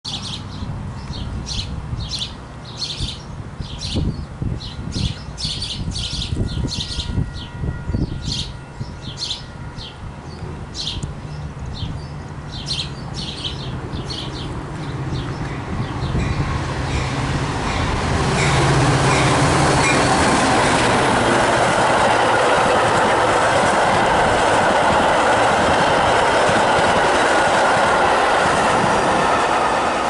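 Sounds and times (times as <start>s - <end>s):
diesel train rumbling: 4.3s - 30.0s
small birds chirping: 8.3s - 16.4s.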